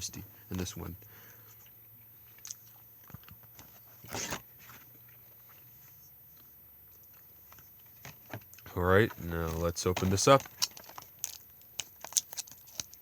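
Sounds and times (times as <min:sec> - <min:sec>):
plastic crinkle: 0:07.5 - 0:13.0
plastic case clicks: 0:09.5 - 0:13.0.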